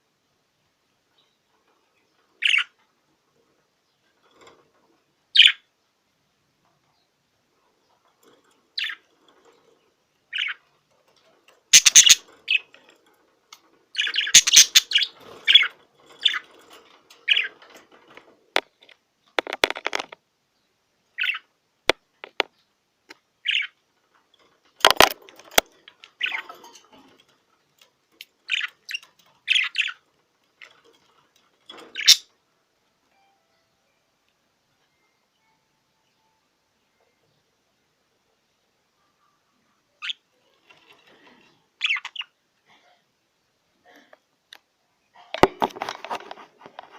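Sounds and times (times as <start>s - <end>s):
budgerigar chirping: 11.7s - 12.7s, 14.0s - 15.7s
rustling: 45.3s - 46.9s.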